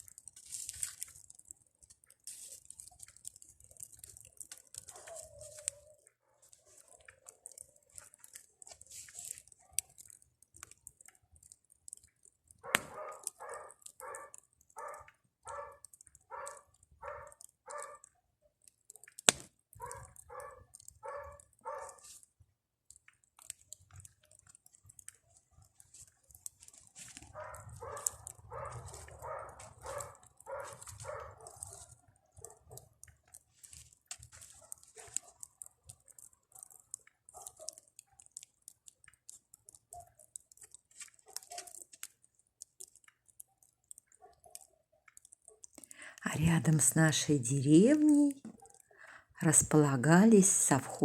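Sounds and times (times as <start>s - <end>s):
campfire crackling: 0.0s - 49.8s
dog barking: 4.9s - 7.1s, 12.6s - 18.1s, 19.8s - 22.0s, 27.3s - 32.9s, 36.6s - 37.9s, 39.9s - 40.3s, 41.2s - 41.8s, 44.1s - 44.8s, 48.5s - 48.9s.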